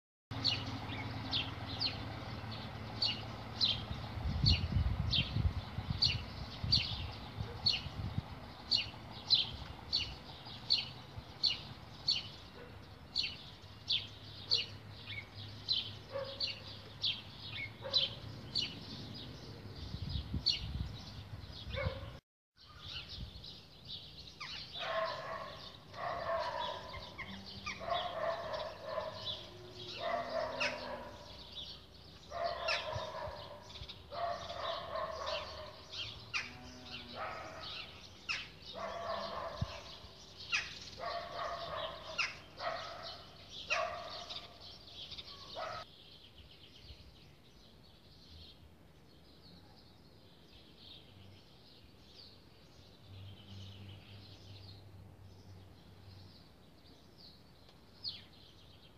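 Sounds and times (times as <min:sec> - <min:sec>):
small bird high chirp: 0:19.9 - 0:23.4, 0:24.3 - 0:45.8
lower bird calls: 0:24.4 - 0:45.9.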